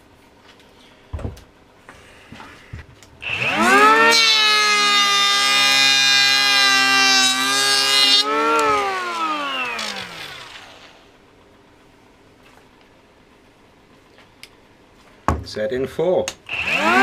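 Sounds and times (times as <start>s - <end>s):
electric planer cutting wood: 3.2s - 11.1s, 16.5s - 17.0s
motor spinning down: 3.2s - 11.1s, 16.5s - 17.0s.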